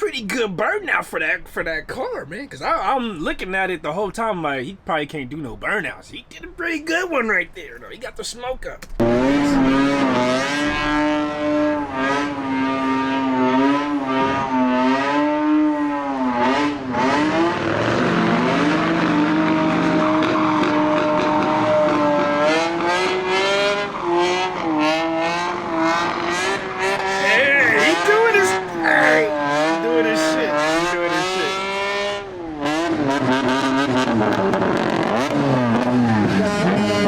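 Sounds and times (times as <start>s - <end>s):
engine revving high: 9.0s - 37.0s.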